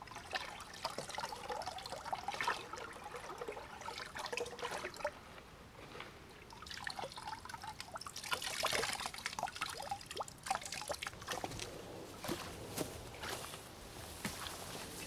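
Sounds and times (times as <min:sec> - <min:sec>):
water splashing pour: 0:00.0 - 0:05.2, 0:06.4 - 0:11.5
water trickling and dripping: 0:00.0 - 0:05.2, 0:06.0 - 0:11.6.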